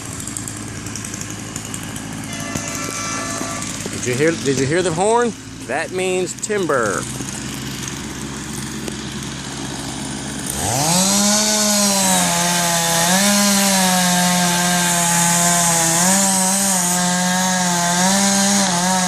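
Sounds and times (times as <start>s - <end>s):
chainsaw revving and cutting: 0.0s - 19.0s.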